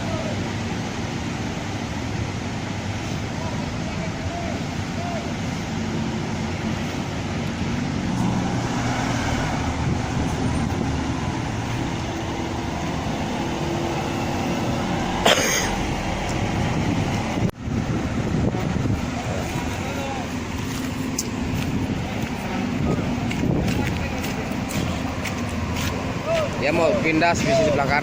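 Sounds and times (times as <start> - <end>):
bus engine humming: 0.0 - 28.0
road and traffic noise: 0.0 - 28.0.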